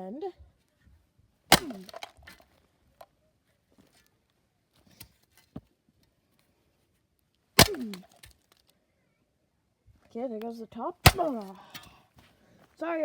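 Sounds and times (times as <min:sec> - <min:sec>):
shovel striking speaker: 0:01.5 - 0:02.1, 0:07.6 - 0:08.3, 0:11.0 - 0:11.6.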